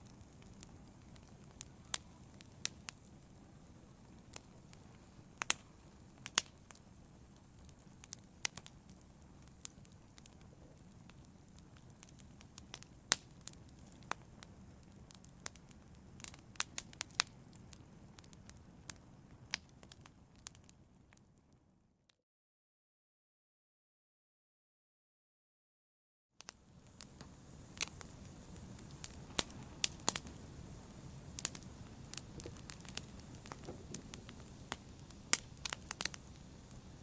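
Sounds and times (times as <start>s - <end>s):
logs crackling and popping: 0.0s - 21.2s, 26.4s - 37.0s
flames rushing: 26.8s - 37.0s.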